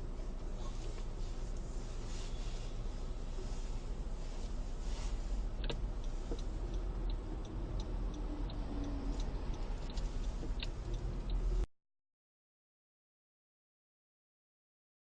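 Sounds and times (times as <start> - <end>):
car turn signal ticking: 0.0 - 11.7.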